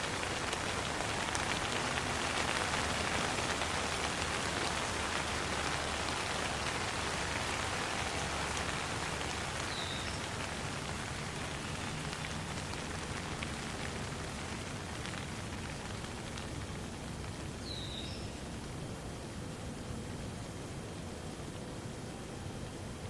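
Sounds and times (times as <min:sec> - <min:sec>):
raindrop hits: 0:00.0 - 0:17.6
steady rain hissing: 0:00.0 - 0:23.0.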